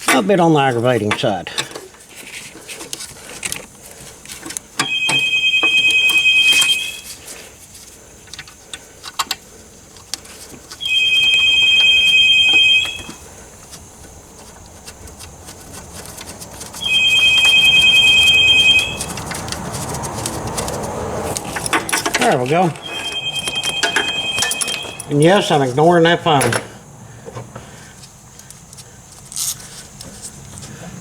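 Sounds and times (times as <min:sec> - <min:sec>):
two-tone electronic phone ring: 0:04.8 - 0:07.1, 0:10.8 - 0:13.2, 0:16.8 - 0:19.3, 0:22.2 - 0:25.6.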